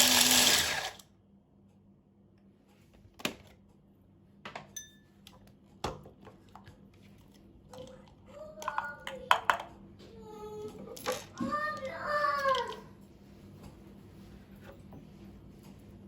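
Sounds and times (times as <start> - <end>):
dishes and cutlery clinking: 4.6 - 5.4
glass ringing when tapped: 4.8 - 5.1.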